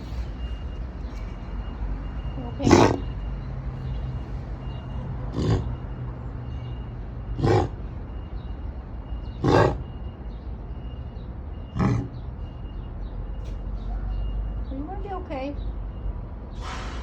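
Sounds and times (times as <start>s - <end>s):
dog making harsh sounds: 2.6s - 3.2s, 5.3s - 5.8s, 7.4s - 7.8s, 9.4s - 9.8s, 11.8s - 12.2s.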